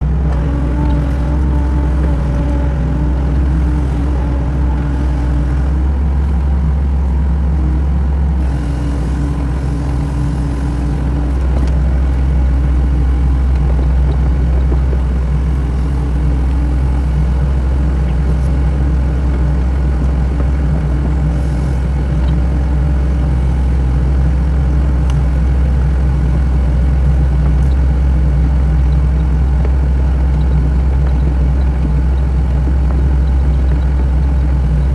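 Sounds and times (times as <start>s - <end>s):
diesel engine humming: 0.0s - 34.9s.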